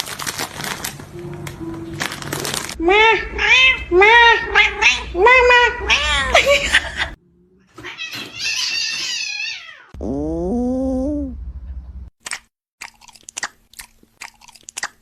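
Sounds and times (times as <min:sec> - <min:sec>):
cat meowing: 0:02.8 - 0:06.6
short clicks and crunches: 0:12.2 - 0:15.0.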